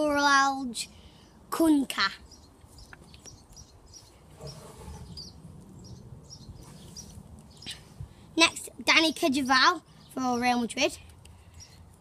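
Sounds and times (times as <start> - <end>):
bird chirps: 2.2 - 8.0.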